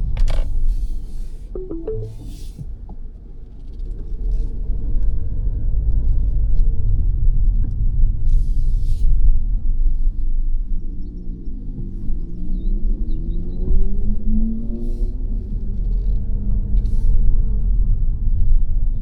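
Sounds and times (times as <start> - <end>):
car road and engine rumble: 0.0 - 1.6, 2.2 - 19.0
short tones: 1.6 - 2.5.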